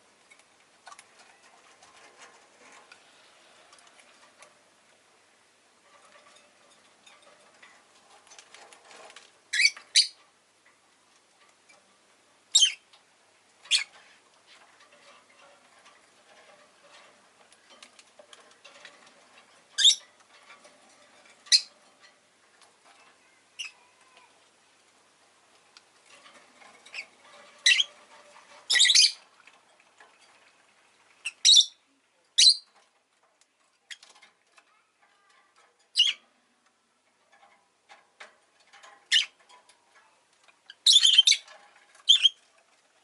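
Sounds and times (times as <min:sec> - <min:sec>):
lovebird chirping: 0:09.5 - 0:10.2, 0:12.5 - 0:12.8, 0:13.7 - 0:13.9, 0:19.8 - 0:20.0, 0:23.6 - 0:23.8, 0:27.6 - 0:27.9, 0:28.7 - 0:29.2, 0:31.2 - 0:31.8, 0:32.4 - 0:32.7, 0:35.9 - 0:36.2, 0:40.7 - 0:41.4, 0:42.0 - 0:42.4.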